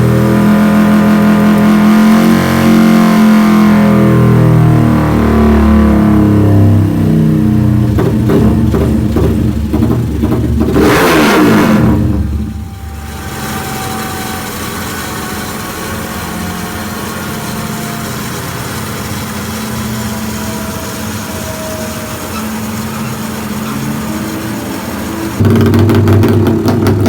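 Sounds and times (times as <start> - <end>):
motorcycle engine revving and idling: 0.0 - 27.0.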